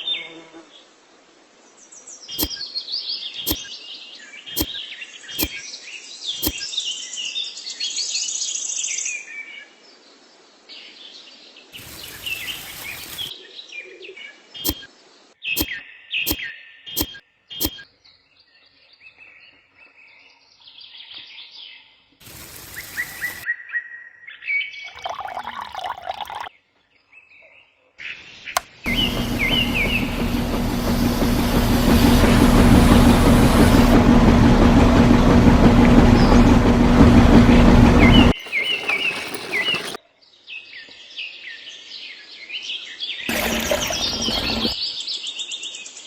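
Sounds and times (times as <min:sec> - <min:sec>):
small birds chirping: 0:02.1 - 0:07.4, 0:24.9 - 0:32.3
loud hum with hiss: 0:28.9 - 0:40.0.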